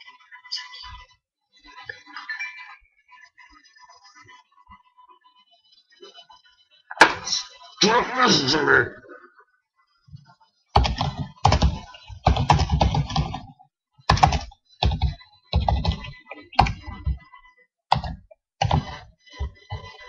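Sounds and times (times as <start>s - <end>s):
typing on computer keyboard: 10.8s - 13.5s, 14.1s - 17.2s, 17.9s - 20.0s.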